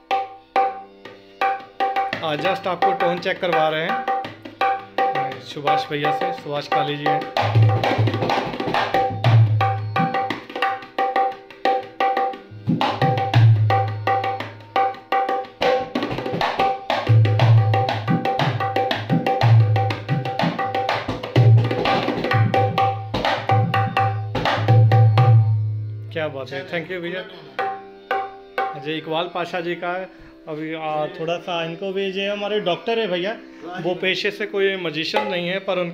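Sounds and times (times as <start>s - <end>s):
hand drum played fast: 1.4s - 25.6s.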